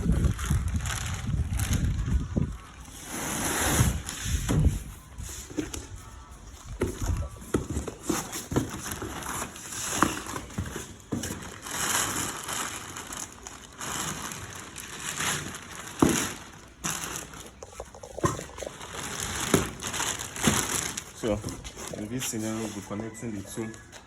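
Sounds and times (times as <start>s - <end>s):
rustling crackling noise: 0.0s - 24.0s.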